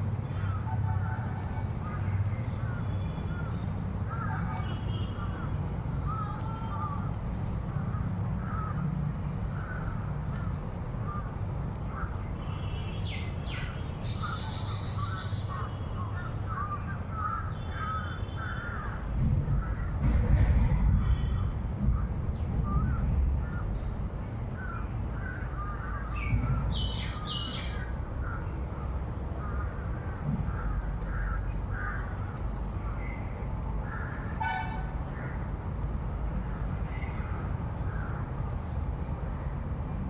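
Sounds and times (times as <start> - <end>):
crows cawing: 4.1 - 7.1, 7.9 - 8.9, 13.6 - 20.0, 24.6 - 28.5, 29.4 - 32.4, 33.8 - 35.4
low bump: 19.0 - 25.4
low rumble: 19.1 - 26.9.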